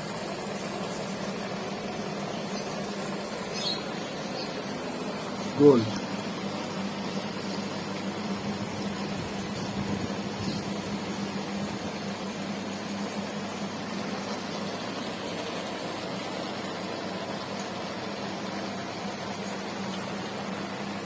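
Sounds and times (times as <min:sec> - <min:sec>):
aquarium air pumps and filters: 0:00.0 - 0:21.0.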